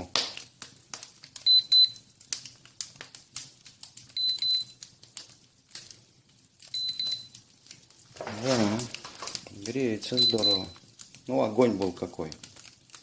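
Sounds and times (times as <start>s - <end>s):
wood fire crackling: 0.0s - 13.0s
high double beeps: 10.2s - 10.8s.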